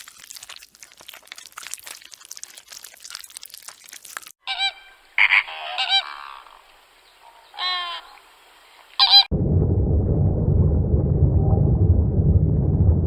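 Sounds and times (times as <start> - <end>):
soft crunching: 0.0 - 4.4
low rumbling noise: 9.3 - 13.0.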